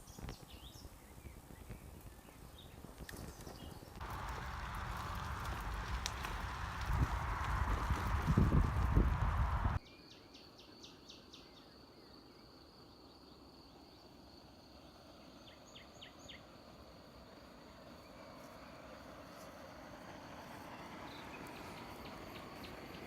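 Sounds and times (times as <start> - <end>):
wind noise on microphone: 0.0 - 9.8.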